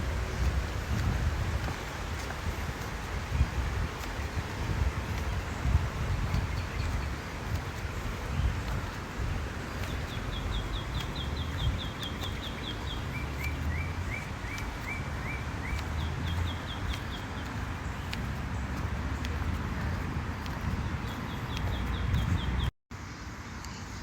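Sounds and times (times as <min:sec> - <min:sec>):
songbird chirping: 0:00.4 - 0:24.0.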